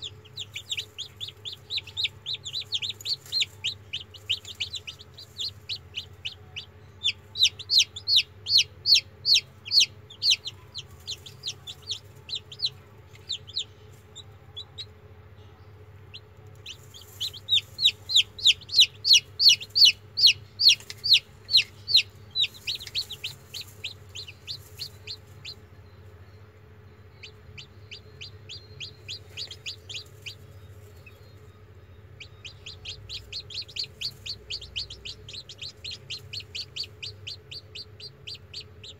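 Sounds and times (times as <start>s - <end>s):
chicks peeping: 0.0s - 38.9s
faint low hum: 0.0s - 38.9s.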